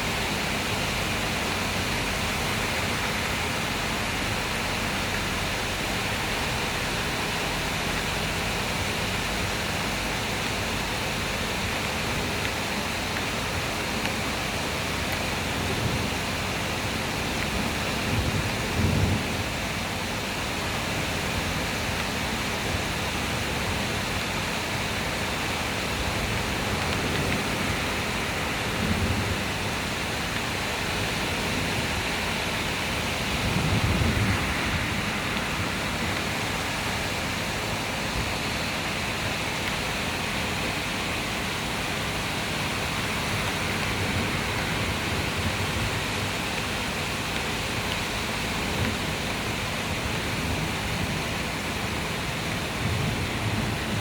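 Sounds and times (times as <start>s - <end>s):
heavy rain pouring: 0.0s - 54.0s
low thunder rumbles: 15.4s - 21.6s, 25.9s - 38.3s.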